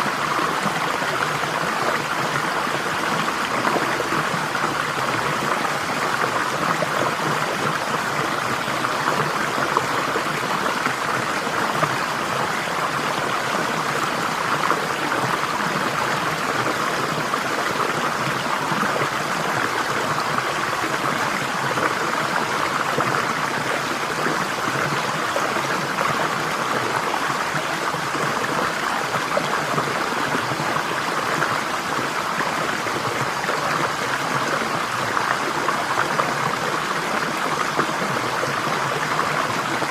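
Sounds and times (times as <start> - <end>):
stream water rushing and babbling: 0.0 - 39.9.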